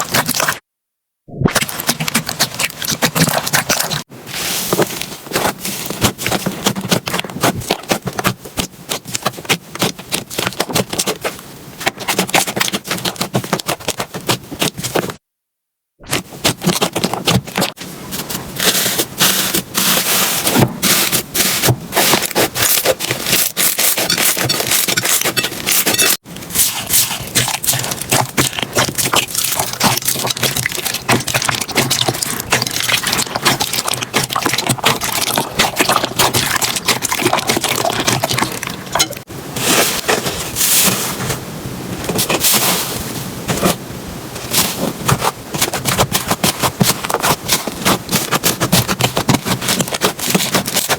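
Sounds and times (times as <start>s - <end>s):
slime crackling and popping: 1.4s - 4.1s, 20.9s - 39.2s.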